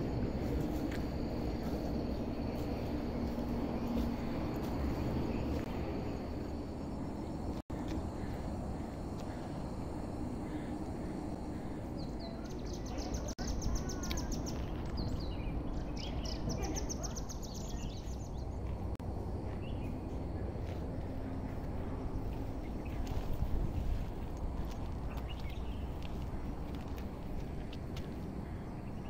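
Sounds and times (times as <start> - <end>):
low outdoor rumble: 0.0 - 29.0
bird singing trilled phrases: 12.0 - 18.5.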